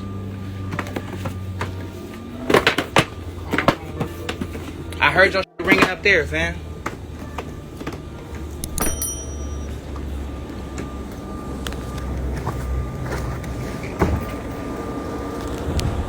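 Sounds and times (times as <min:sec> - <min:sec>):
vehicle engine rumble: 0:00.0 - 0:16.0
clicks: 0:08.6 - 0:09.7.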